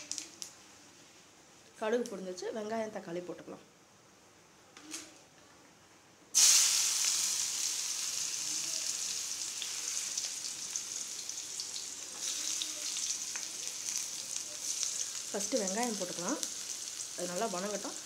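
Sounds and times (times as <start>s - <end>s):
vegetables sizzling in hot oil: 6.4s - 18.0s.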